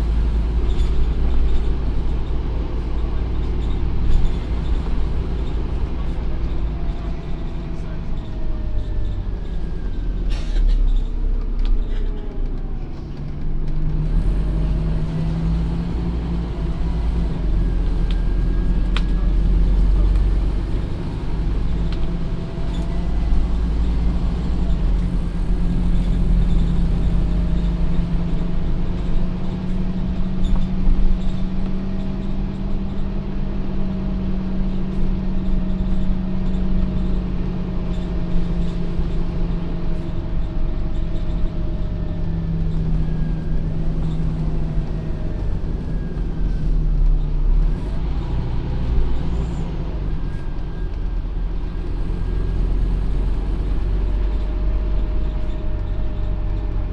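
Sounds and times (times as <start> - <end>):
bus diesel engine running: 0.0 - 56.9.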